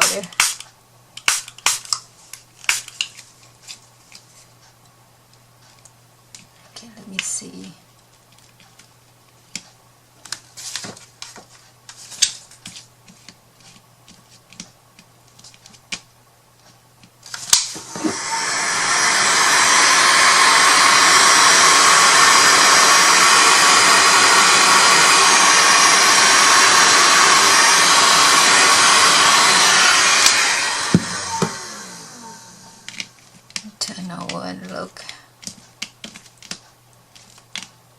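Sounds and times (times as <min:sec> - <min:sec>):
hot-air blower running: 0:17.5 - 0:33.2.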